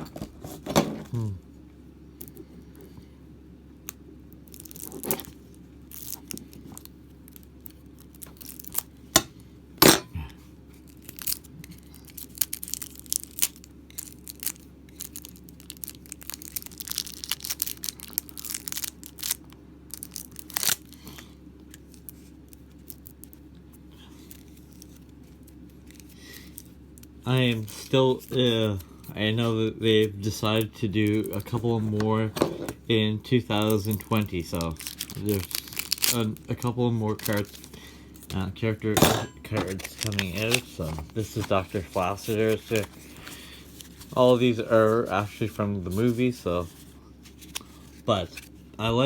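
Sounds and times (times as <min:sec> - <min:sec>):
plastic wrapping tearing and crinkling: 0:04.5 - 0:08.9, 0:10.8 - 0:23.4, 0:33.4 - 0:38.3, 0:38.9 - 0:48.6.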